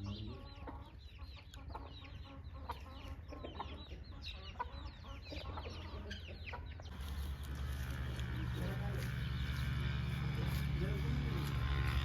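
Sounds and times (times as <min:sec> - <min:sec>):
birds chirping: 0:00.0 - 0:12.0
steady low hum: 0:06.9 - 0:12.0.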